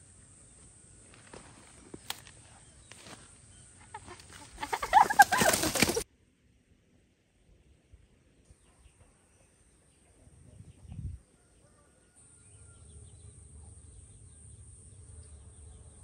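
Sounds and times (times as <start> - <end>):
chickens squawking: 3.8 - 6.0
wings flapping: 3.9 - 6.0.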